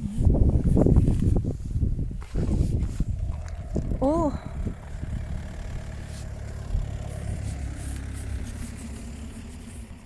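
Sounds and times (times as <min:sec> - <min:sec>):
car engine idling: 0:03.0 - 0:10.0.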